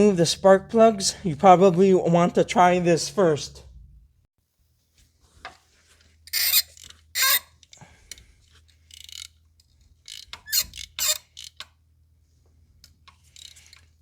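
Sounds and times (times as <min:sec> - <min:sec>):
ratchet clicks: 0:08.9 - 0:11.8, 0:13.1 - 0:13.9.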